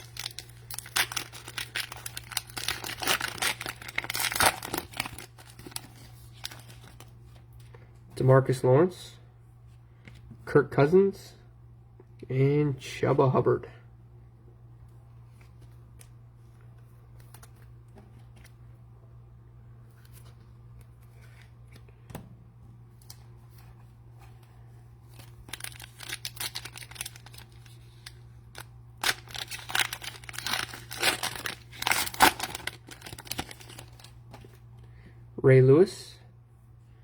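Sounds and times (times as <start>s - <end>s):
cellophane wrapper tearing and crinkling: 0.0s - 7.1s, 25.1s - 34.6s
low steady hum: 0.0s - 37.0s.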